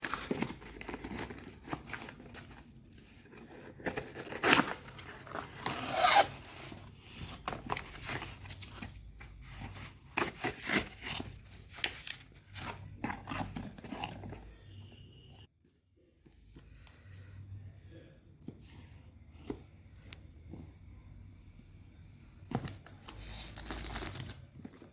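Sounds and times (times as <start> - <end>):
packaging rustling and clicking: 0.0 - 14.5.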